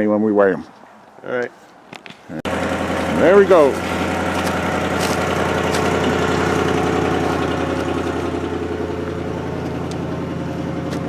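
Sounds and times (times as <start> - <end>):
vehicle engine idling: 2.4 - 11.0.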